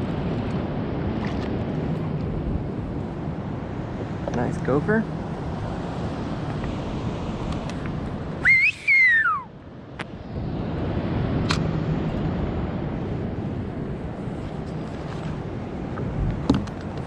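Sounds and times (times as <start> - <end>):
wind and water noise: 0.0 - 17.0
loud gliding whistle: 8.4 - 9.5.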